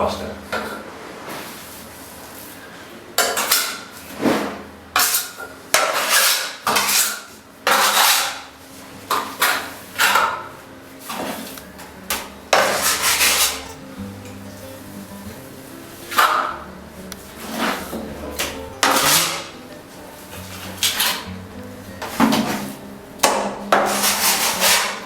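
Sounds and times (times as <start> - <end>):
trowel scraping plaster: 3.4 - 8.5, 12.6 - 13.7, 17.3 - 19.5, 22.1 - 25.0.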